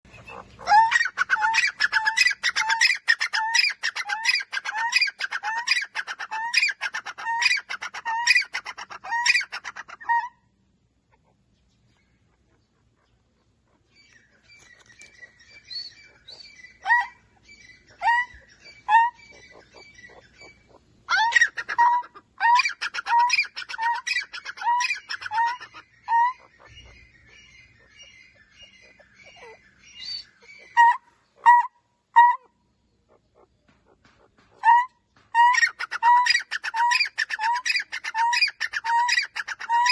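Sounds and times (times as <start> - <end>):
francolin calling: 11.9 - 33.5.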